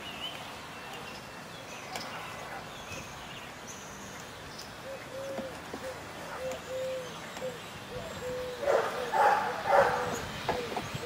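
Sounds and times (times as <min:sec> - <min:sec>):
dog barking: 0:08.6 - 0:10.2.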